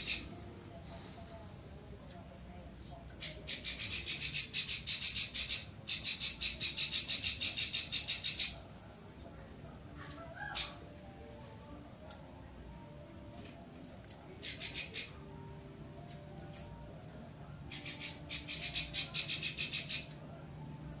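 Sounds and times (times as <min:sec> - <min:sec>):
songbird singing rapid high notes: 0:00.0 - 0:00.4, 0:03.1 - 0:08.7, 0:14.3 - 0:15.4, 0:17.6 - 0:20.2.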